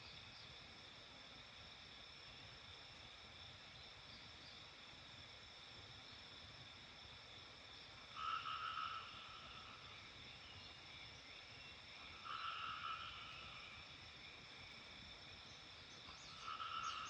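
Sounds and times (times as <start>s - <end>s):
faint high-pitched hum: 0.0s - 17.0s
frog calling: 8.1s - 10.0s, 12.0s - 13.8s, 16.1s - 17.0s.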